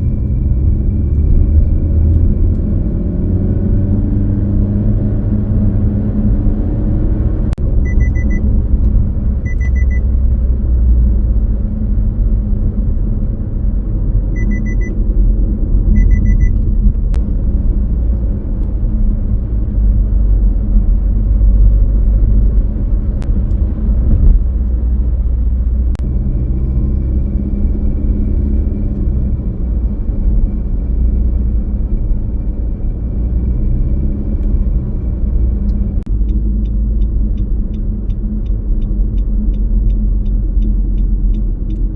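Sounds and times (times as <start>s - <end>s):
car engine and tyre rumble: 0.0s - 41.9s
short high beeps: 7.8s - 8.5s, 9.4s - 10.0s, 14.4s - 15.0s, 15.9s - 16.6s.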